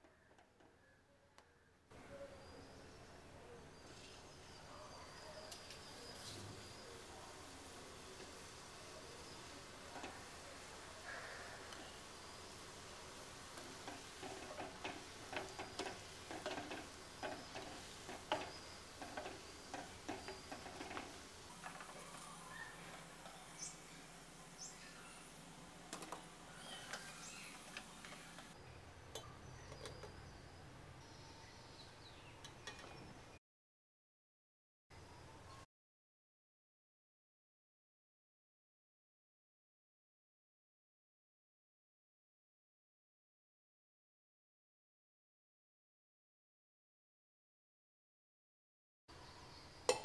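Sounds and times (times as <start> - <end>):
dough deep-frying in oil: 5.4 - 31.0.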